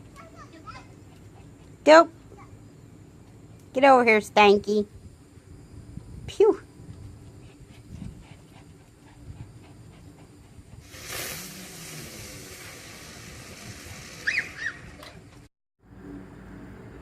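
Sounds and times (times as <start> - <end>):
firework hissing: 10.7 - 15.5.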